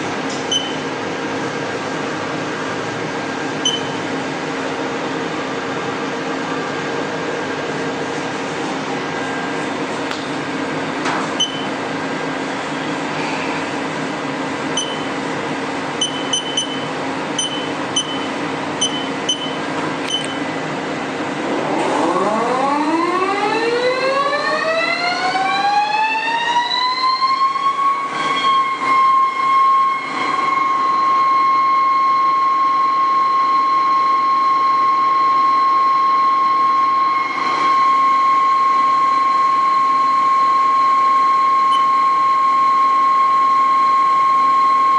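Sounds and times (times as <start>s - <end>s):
machine hum: 0.1s - 25.6s
keypad beeps: 0.5s - 0.8s, 3.6s - 4.0s, 11.4s - 11.7s, 14.8s - 15.2s, 16.0s - 20.4s, 41.7s - 41.9s.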